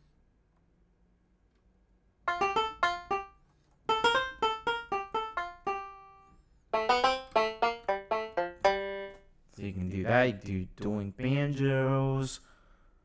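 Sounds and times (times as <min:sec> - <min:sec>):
plucked banjo notes: 0:02.3 - 0:09.3.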